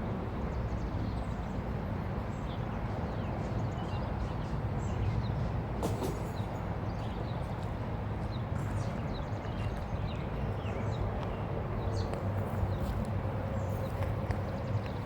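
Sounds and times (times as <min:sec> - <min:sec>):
wheels clacking on rails: 0:05.8 - 0:06.9, 0:11.2 - 0:15.0.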